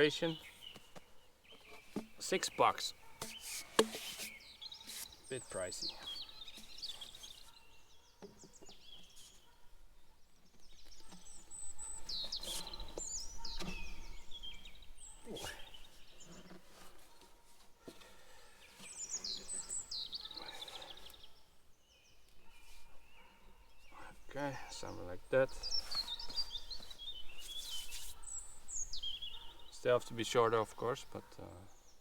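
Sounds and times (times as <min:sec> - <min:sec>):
songbirds singing: 0:00.0 - 0:32.0
sharp handling knocks: 0:01.6 - 0:02.4, 0:03.2 - 0:04.4.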